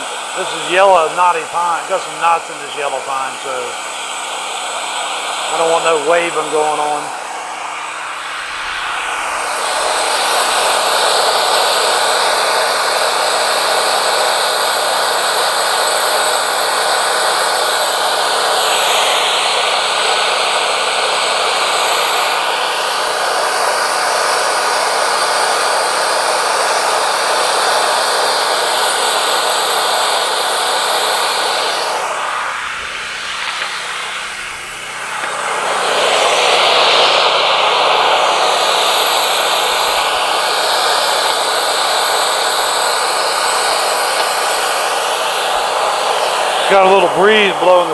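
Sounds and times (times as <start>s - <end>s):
band sawmill cutting wood: 0.0s - 47.9s.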